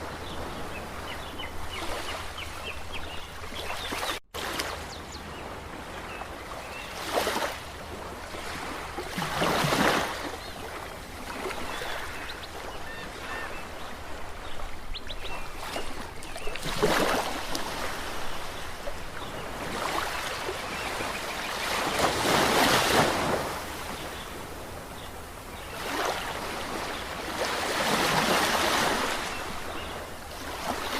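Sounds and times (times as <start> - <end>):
ocean waves surging: 19.4 - 30.9.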